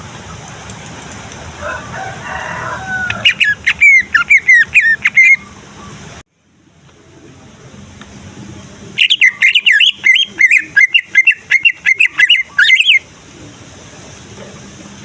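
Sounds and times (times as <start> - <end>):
bird singing: 3.0 - 6.0, 9.0 - 13.1.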